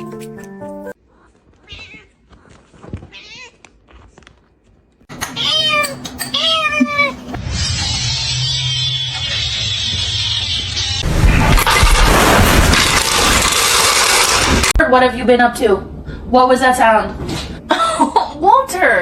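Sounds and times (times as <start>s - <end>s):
cat meowing: 1.6s - 2.2s, 3.1s - 3.6s, 5.4s - 7.2s.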